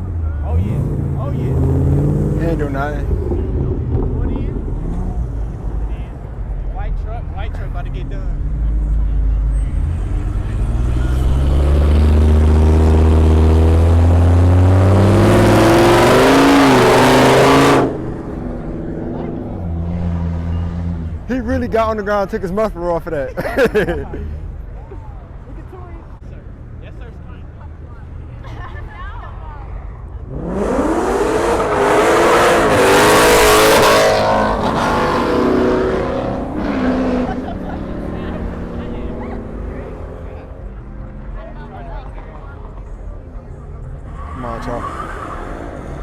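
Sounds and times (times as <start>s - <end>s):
truck engine at high revs: 9.4s - 21.3s, 30.3s - 40.6s.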